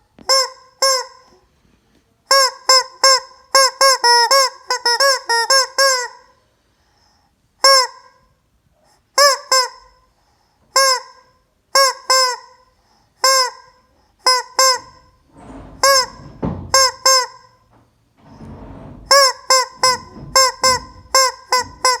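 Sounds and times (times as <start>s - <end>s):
rough rushing noise: 14.8s - 16.8s, 18.2s - 19.2s.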